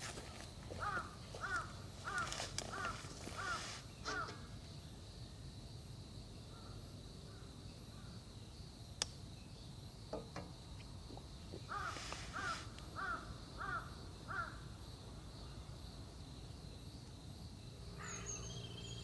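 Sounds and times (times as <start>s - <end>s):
crow cawing: 0.8s - 4.5s, 11.7s - 14.6s.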